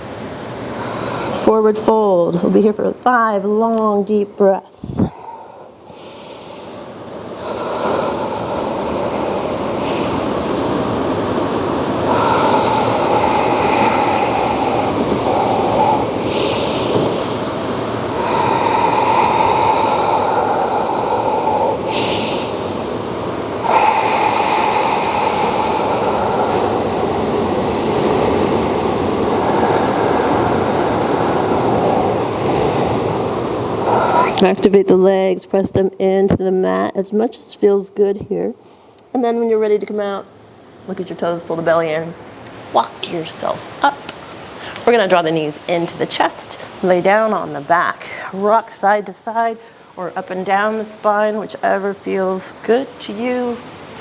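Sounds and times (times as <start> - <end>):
deep breathing: 0.6 - 1.5, 4.8 - 34.4
steady rushing noise: 4.8 - 34.4.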